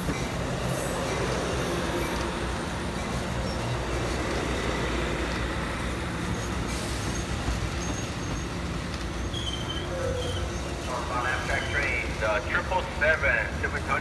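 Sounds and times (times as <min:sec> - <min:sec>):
passenger train rumbling past: 0:00.0 - 0:14.0.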